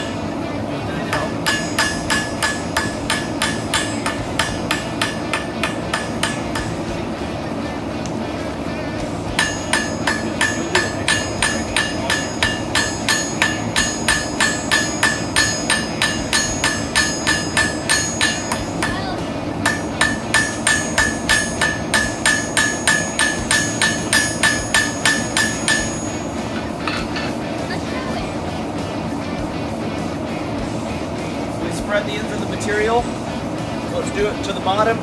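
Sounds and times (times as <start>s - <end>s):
hammer striking steel on anvil: 0.0s - 0.4s, 1.0s - 8.2s, 9.2s - 27.6s.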